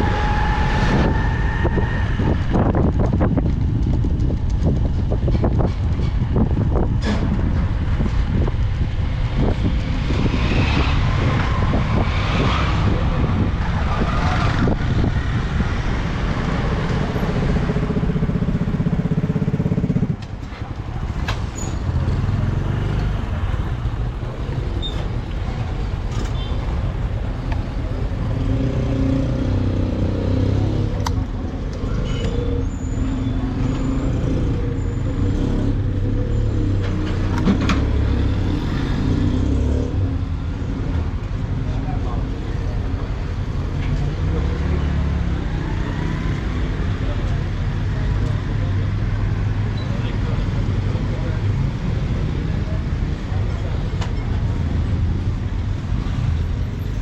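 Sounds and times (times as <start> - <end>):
wind on microphone: 0.0 - 18.7.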